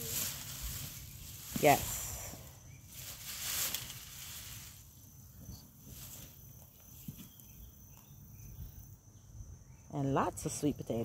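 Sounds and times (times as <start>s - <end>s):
short rustle: 0.0s - 6.4s
high insect whine: 0.0s - 11.0s.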